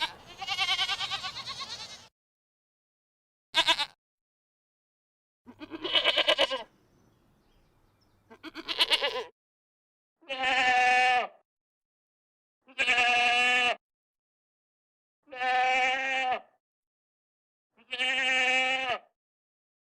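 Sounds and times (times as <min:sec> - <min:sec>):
sheep bleating: 0:00.0 - 0:02.1, 0:03.6 - 0:04.0, 0:05.5 - 0:06.7, 0:08.3 - 0:09.3, 0:10.2 - 0:11.4, 0:12.7 - 0:13.8, 0:15.3 - 0:16.6, 0:17.8 - 0:19.1.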